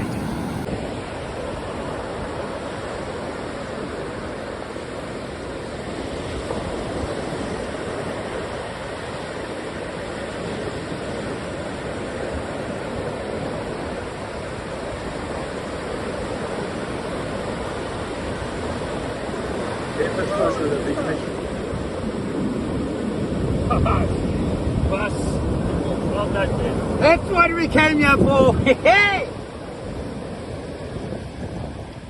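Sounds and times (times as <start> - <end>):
ocean surf breaking: 0.0 - 0.7.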